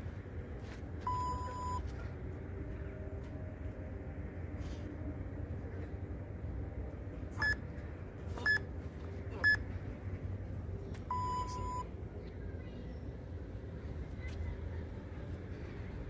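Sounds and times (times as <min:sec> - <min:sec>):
long lower beep: 0:11.1 - 0:11.8.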